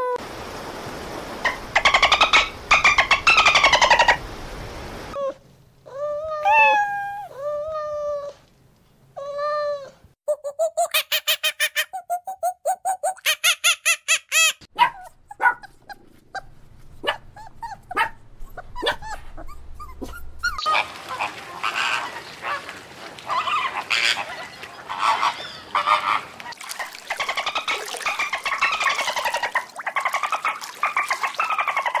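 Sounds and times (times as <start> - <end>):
animal squeaks and clicks: 17.4 - 20.7
geese honking: 20.6 - 32.0.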